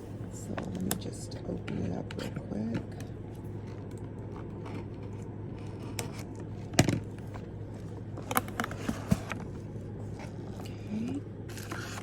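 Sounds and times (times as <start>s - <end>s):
steady low hum: 0.0s - 12.0s
packaging clicks and scrapes: 3.6s - 10.4s, 11.5s - 12.0s.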